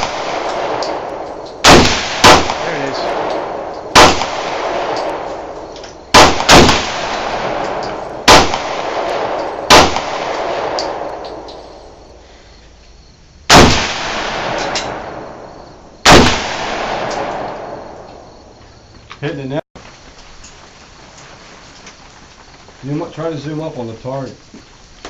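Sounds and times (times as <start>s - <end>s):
rifle shots with echo: 0.0s - 12.0s, 13.5s - 18.3s.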